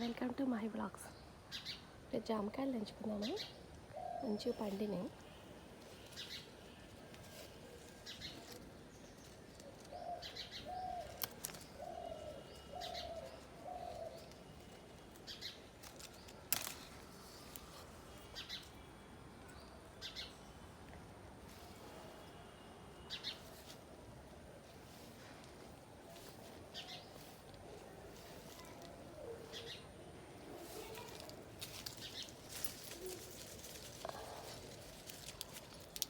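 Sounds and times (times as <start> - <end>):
small birds chirping: 3.0 - 18.8, 24.9 - 36.0.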